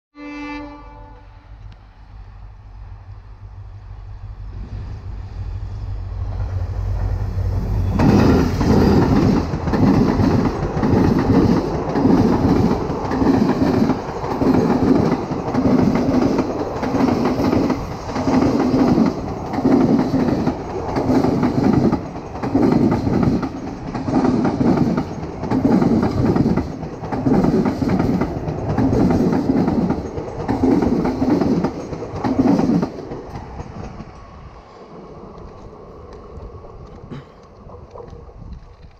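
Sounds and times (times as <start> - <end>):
diesel locomotive hum: 0.2 - 38.9
train wheels clickety-clack: 6.2 - 34.3.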